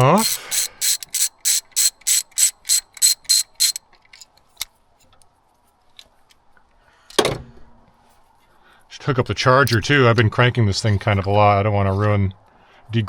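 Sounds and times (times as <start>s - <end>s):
ratchet wrench ratcheting: 0.0s - 3.8s.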